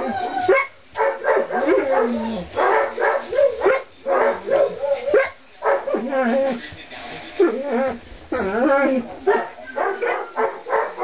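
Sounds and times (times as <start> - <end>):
puppies whining and squealing: 0.0 - 2.6, 6.0 - 11.0.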